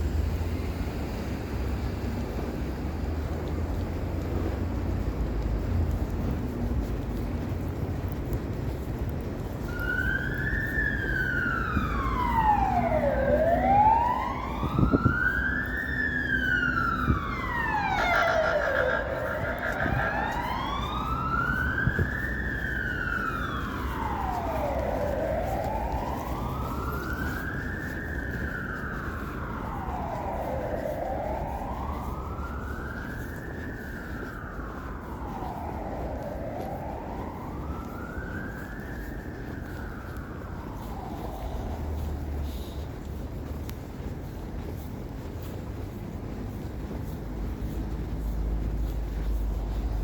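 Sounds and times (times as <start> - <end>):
emergency siren wailing: 0.0 - 50.0
street traffic rumble: 0.0 - 50.0.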